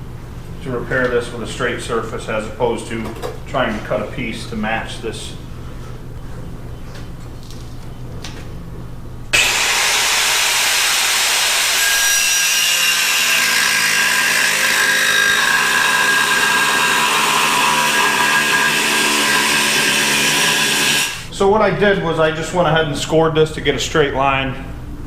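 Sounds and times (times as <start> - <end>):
power cutting tool whining: 9.4 - 21.3.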